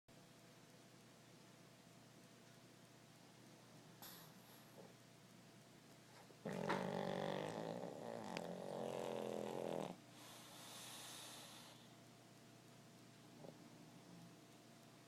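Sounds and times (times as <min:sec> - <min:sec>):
soft hissing breath: 0:03.7 - 0:05.0, 0:07.0 - 0:12.1
dog snoring: 0:06.4 - 0:11.9.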